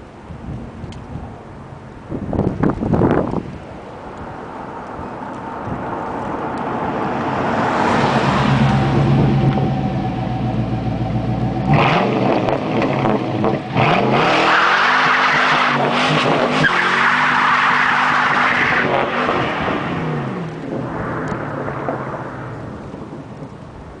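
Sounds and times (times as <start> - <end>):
car engine revving: 6.4 - 23.0.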